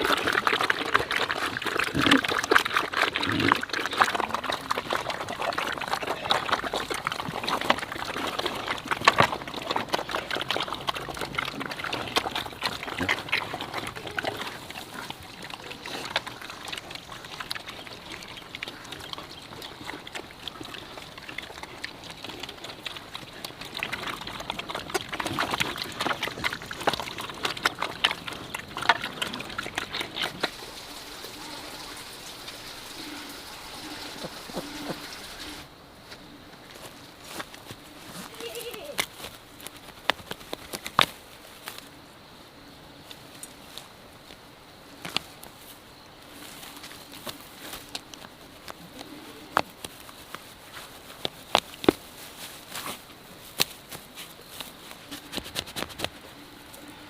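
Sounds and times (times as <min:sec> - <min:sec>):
pig grunts: 0:00.0 - 0:32.0, 0:32.9 - 0:35.6
pigs slurping and smacking: 0:00.0 - 0:35.7, 0:44.9 - 0:57.0.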